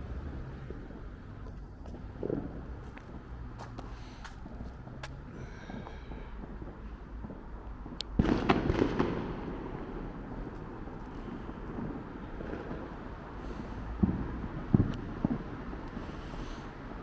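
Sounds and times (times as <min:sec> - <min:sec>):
fireworks crackling bangs: 0:00.0 - 0:17.0.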